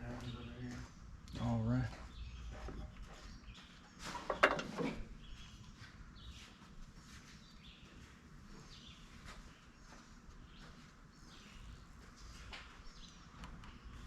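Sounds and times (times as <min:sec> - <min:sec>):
birds chirping faintly: 0:00.0 - 0:14.0
clatter of knocks: 0:04.1 - 0:05.0.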